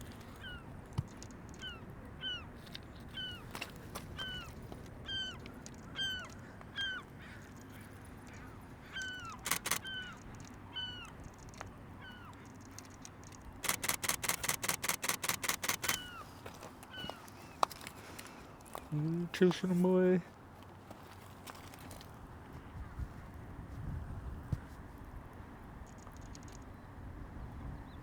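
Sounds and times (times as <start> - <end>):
camera shutter bursts: 9.4 - 10.4, 13.6 - 16.2.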